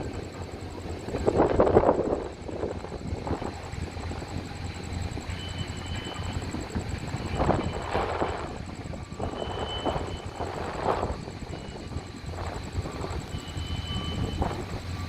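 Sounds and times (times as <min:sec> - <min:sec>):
wind on microphone: 0:00.0 - 0:05.4, 0:06.0 - 0:15.0
rumble of vehicles: 0:00.0 - 0:15.0.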